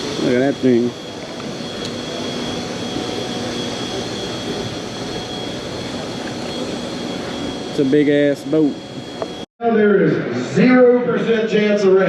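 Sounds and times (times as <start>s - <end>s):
outboard motors running: 0.0s - 9.4s.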